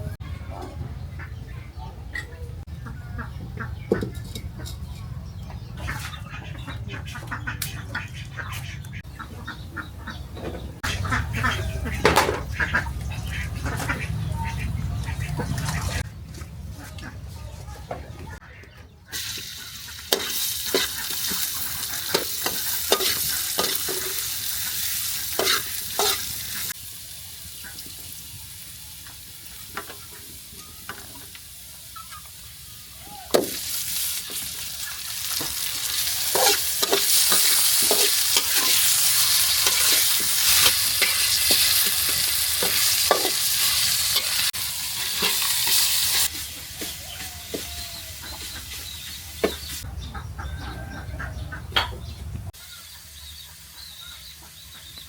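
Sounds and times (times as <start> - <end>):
food sizzling in a pan: 19.2 - 48.8.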